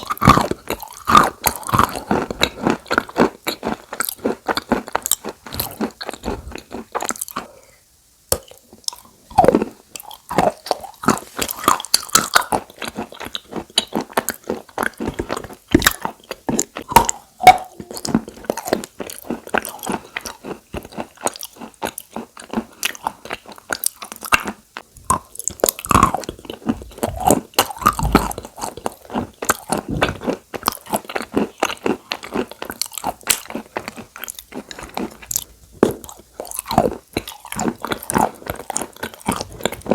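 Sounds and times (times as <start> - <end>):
chalk crunching and chewing: 0.0 - 7.6, 8.3 - 39.9.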